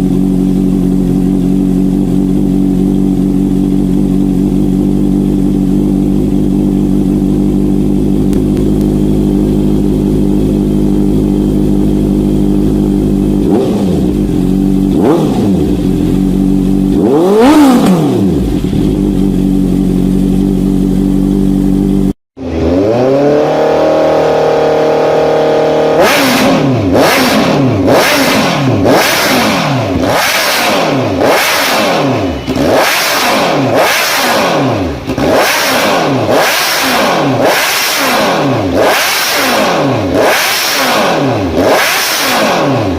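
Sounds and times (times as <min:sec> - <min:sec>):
motorcycle engine idling and revving: 0:00.0 - 0:42.9.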